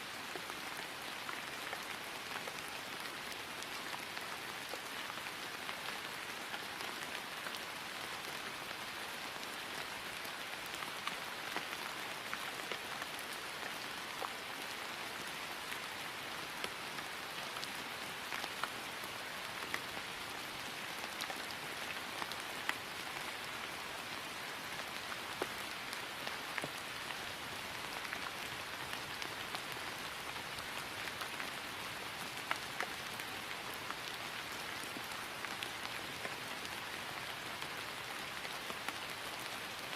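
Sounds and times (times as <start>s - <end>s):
rain falling on grass: 0.0s - 39.9s.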